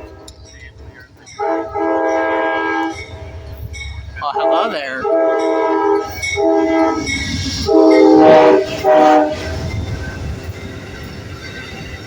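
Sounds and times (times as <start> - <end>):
train rumbling: 0.0 - 12.0
locomotive horn blasts: 1.4 - 3.4, 4.2 - 9.5.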